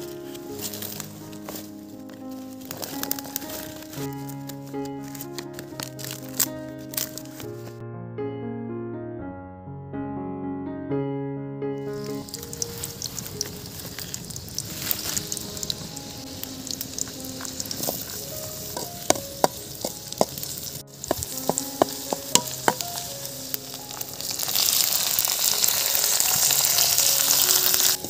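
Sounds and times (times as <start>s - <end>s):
food sizzling in hot oil: 2.6s - 4.4s, 11.9s - 28.0s.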